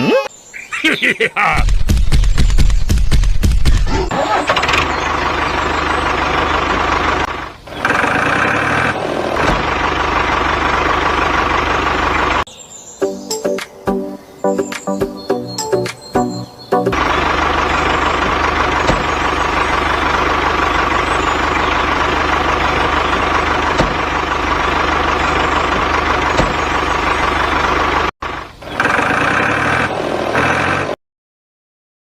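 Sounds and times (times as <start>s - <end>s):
engine idling hum: 3.1s - 12.5s, 16.4s - 30.1s.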